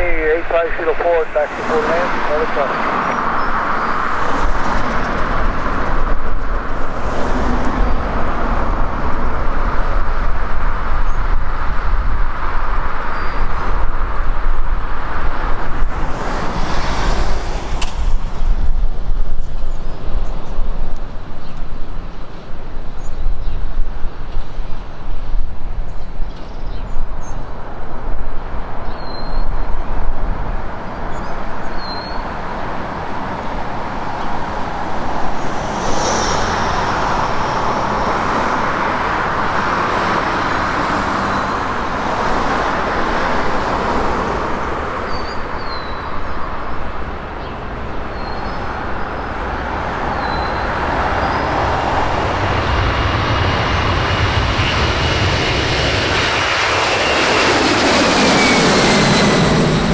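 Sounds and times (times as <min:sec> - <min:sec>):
high whine: 0:00.0 - 0:07.0, 0:34.2 - 0:40.0, 0:50.5 - 0:59.9
jet engines running: 0:00.0 - 0:23.3, 0:30.2 - 0:59.9.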